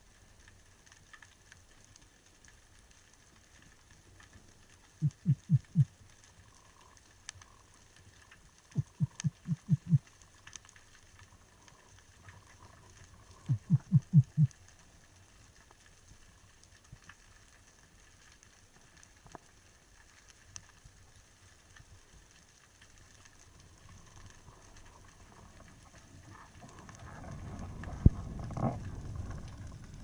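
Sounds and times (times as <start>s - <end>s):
faint underwater clicks: 0.0s - 30.0s
low rapid underwater pulses: 5.0s - 5.9s, 8.7s - 10.0s, 13.3s - 14.5s.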